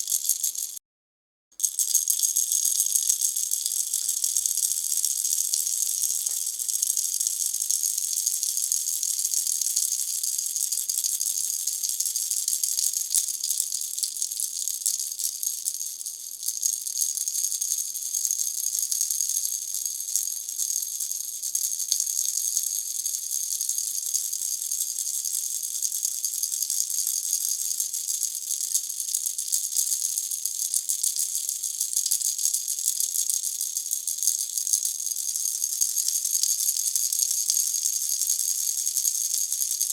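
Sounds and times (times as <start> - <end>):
baby rattle shaken: 0.0 - 0.8, 1.6 - 7.0.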